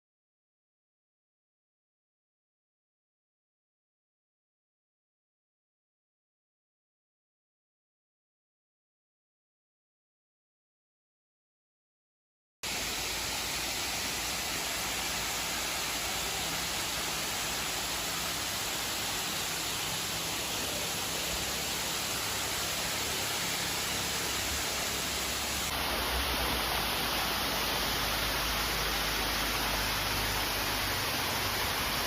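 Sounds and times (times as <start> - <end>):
waterfall rushing: 12.7 - 32.0.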